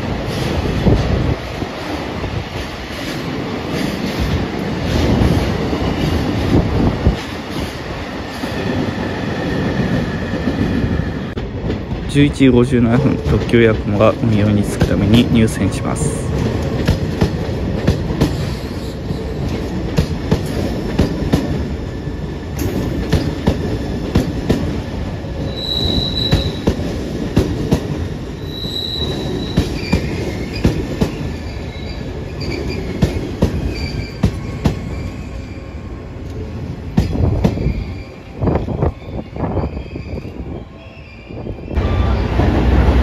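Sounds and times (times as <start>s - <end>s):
electric train rolling: 0.0s - 43.0s
high-pitched wheel squeals: 25.5s - 26.7s, 28.4s - 30.6s, 33.7s - 35.8s, 37.5s - 42.3s.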